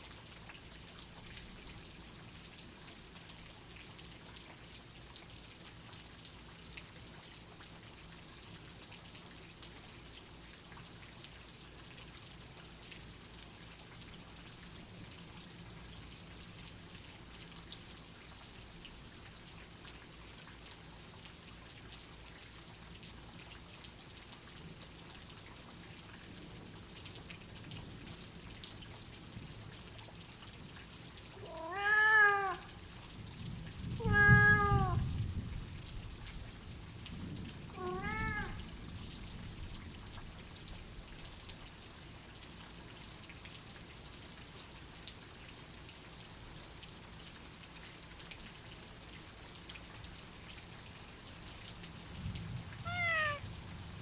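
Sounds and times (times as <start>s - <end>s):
steady rain falling: 0.0s - 54.0s
cat meowing: 31.4s - 32.8s, 34.0s - 35.0s, 37.7s - 38.6s, 52.8s - 53.4s.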